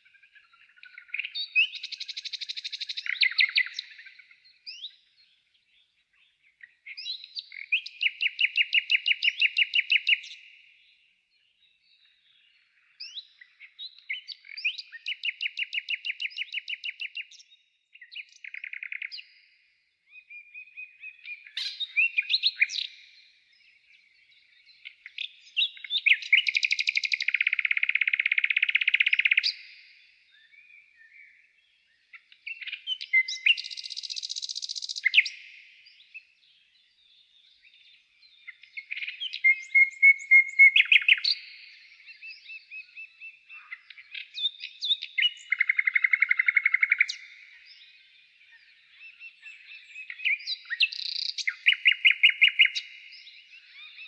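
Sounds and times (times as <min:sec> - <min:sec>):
songbird trilling: 0:00.0 - 0:05.1, 0:06.6 - 0:10.6, 0:18.1 - 0:19.4, 0:20.1 - 0:23.3, 0:24.2 - 0:31.3, 0:32.1 - 0:36.3, 0:37.5 - 0:54.0
bird whistles and chirps: 0:00.5 - 0:05.1, 0:13.0 - 0:19.4, 0:20.1 - 0:23.3, 0:25.1 - 0:31.4, 0:32.1 - 0:36.3, 0:37.5 - 0:54.0.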